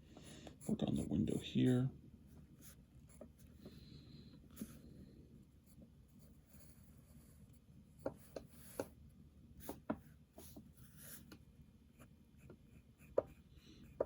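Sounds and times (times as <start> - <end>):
pencil scratching on paper: 0.2 - 1.8, 5.7 - 9.0, 9.6 - 11.4, 12.0 - 14.0.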